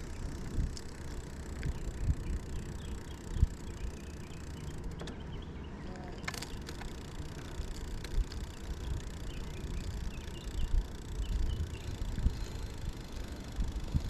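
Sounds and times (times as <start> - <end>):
wind noise: 0.0 - 4.0, 7.9 - 14.0
bike tyre rumble: 0.0 - 14.0.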